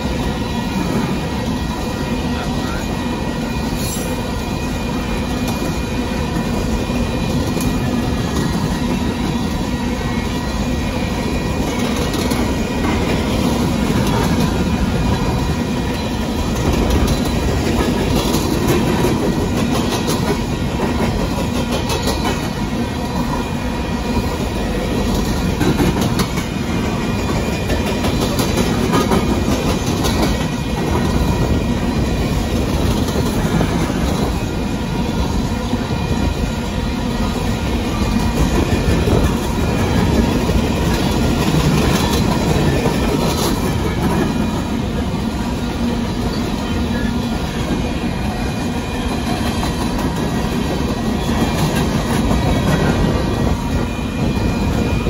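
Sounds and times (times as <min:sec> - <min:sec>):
train wheels rumbling on rails: 0:00.0 - 0:55.0
wheels clicking over rail joints: 0:11.6 - 0:23.3, 0:25.0 - 0:34.4, 0:38.0 - 0:44.6.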